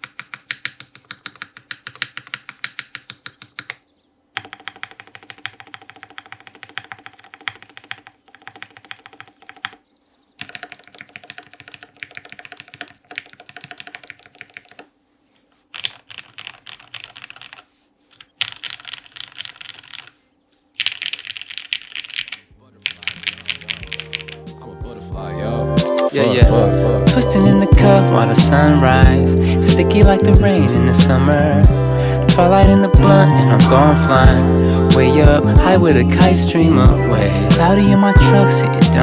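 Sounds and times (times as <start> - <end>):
mechanical keyboard typing: 0.0 - 3.8, 4.4 - 9.8, 10.4 - 14.9, 15.7 - 17.7, 18.3 - 20.2, 20.8 - 24.5.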